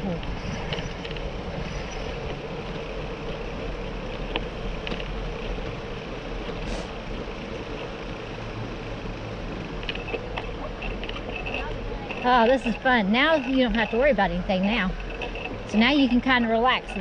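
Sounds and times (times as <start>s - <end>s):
wind on microphone: 0.0s - 2.8s
bicycle tyres rolling: 0.0s - 17.0s.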